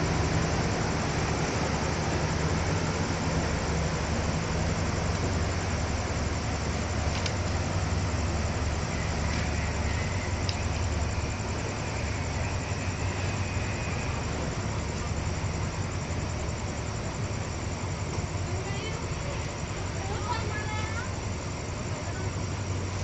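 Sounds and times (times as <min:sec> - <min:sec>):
train rumbling: 0:00.0 - 0:23.0
faint clicks: 0:10.4 - 0:10.6.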